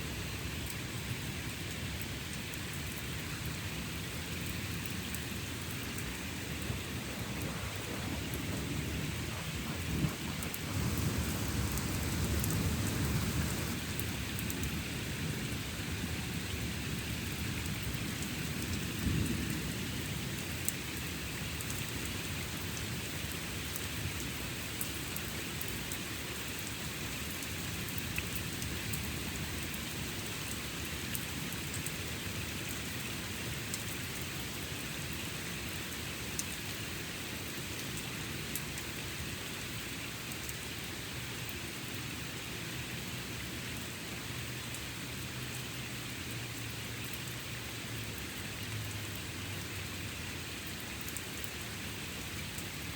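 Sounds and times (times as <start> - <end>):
steady rain falling: 0.0 - 52.9
sharp raindrop ticks: 1.6 - 15.6, 17.0 - 39.0, 39.6 - 40.6, 43.1 - 52.9
rolling thunder rumble: 6.2 - 14.1.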